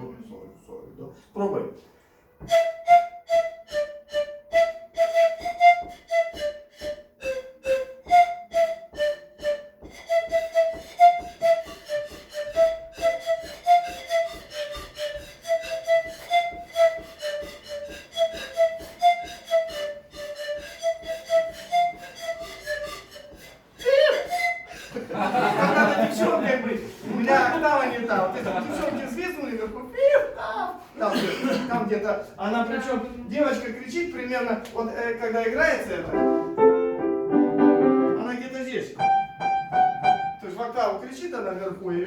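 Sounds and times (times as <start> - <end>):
panpipes playing rhythmic notes: 2.4 - 28.9, 36.0 - 40.7.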